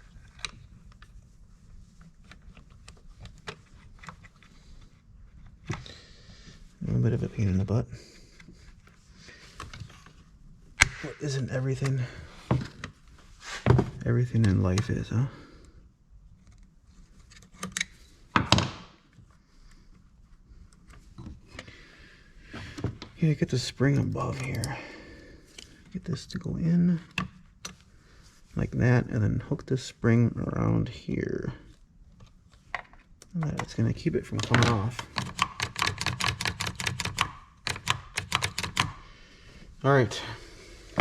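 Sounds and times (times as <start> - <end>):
small parts clicking: 34.4 - 39.0.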